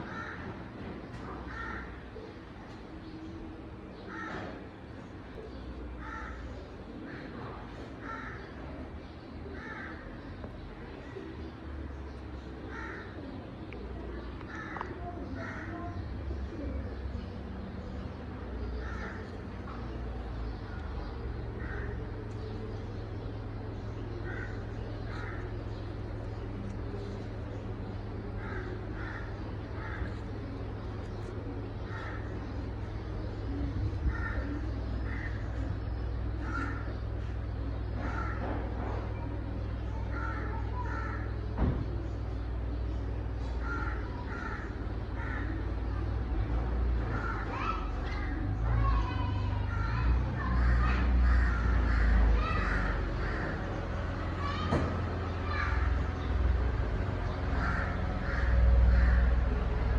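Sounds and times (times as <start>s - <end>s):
bird calling: 0.0s - 59.9s
steady low hum: 0.0s - 59.9s
steady low rumble: 17.2s - 38.3s.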